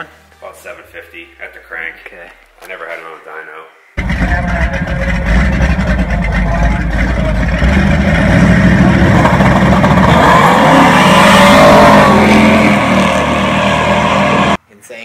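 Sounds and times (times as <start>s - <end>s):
engine rumbling and revving: 4.0s - 14.6s.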